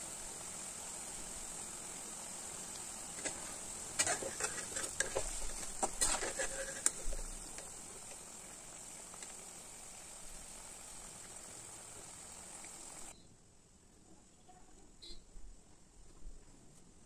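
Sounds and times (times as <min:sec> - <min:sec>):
food frying in hot oil: 0:00.0 - 0:13.2
metal skimmer scraping a pan: 0:03.1 - 0:08.1.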